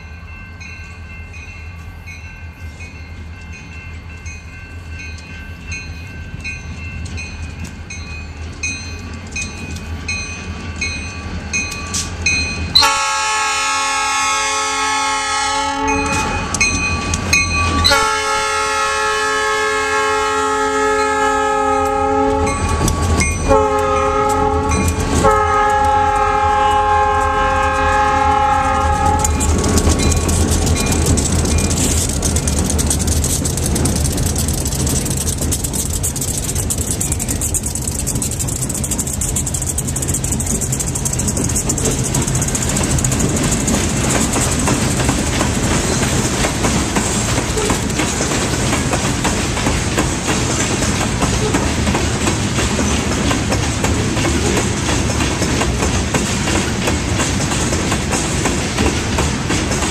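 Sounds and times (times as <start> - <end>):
train wheels clattering on rails: 3.4 - 59.9
locomotive horn blasts: 12.8 - 16.6, 17.8 - 29.5.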